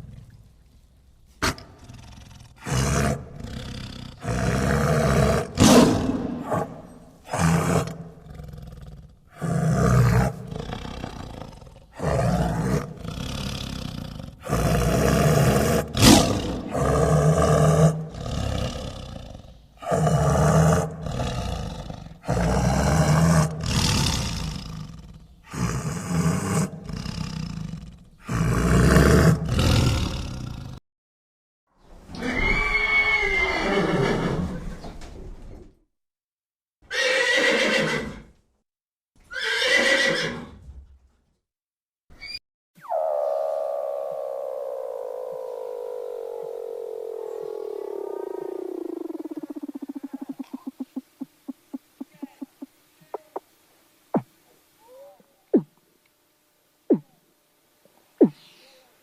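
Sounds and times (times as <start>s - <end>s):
large animal roaring: 1.4s - 30.8s, 42.8s - 51.2s.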